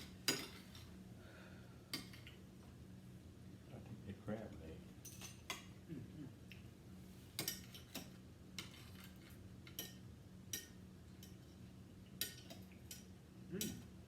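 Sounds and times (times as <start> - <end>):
faint low hum: 0.0 - 14.0
utensils clinking against bowls: 7.4 - 11.4.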